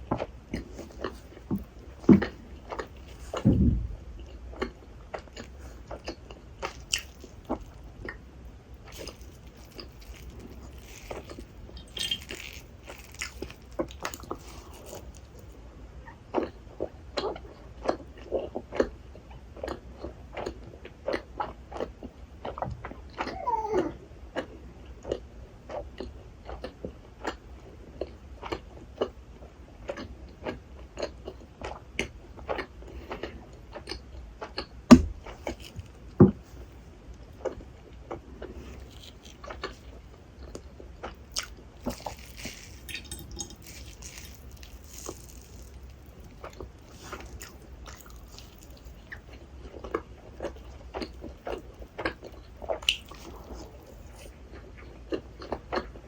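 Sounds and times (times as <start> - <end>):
wet chewing and squishing: 0.0 - 27.4, 28.0 - 56.0
loud knocks: 3.4 - 4.0.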